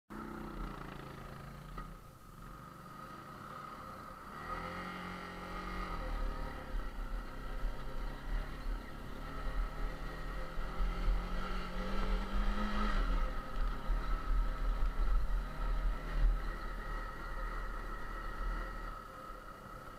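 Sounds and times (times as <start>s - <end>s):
motorcycle engine revving: 0.1s - 19.9s.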